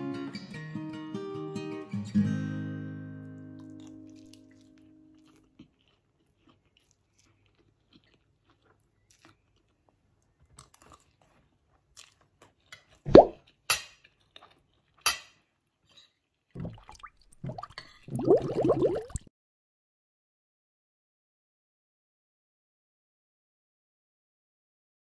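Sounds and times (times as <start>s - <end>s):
person chewing food: 3.6s - 18.1s
cutlery clinking on plate: 15.0s - 16.1s.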